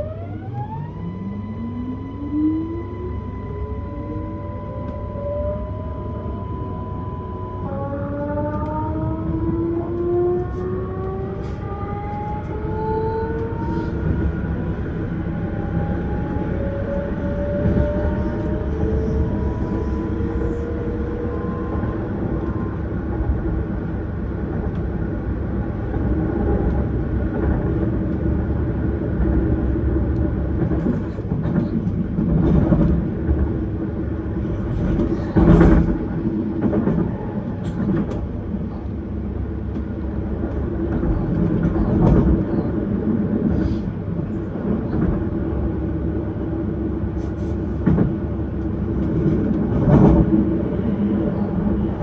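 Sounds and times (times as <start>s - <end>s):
train wheels rumbling on rails: 6.2s - 52.0s
train clunks: 34.5s - 38.9s, 39.6s - 45.3s, 47.4s - 52.0s.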